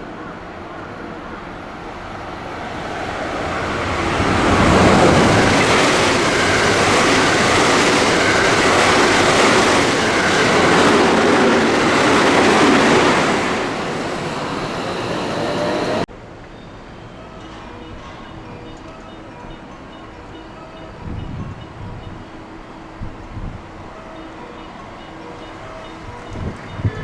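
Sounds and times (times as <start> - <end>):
train passing at speed: 0.0 - 27.0.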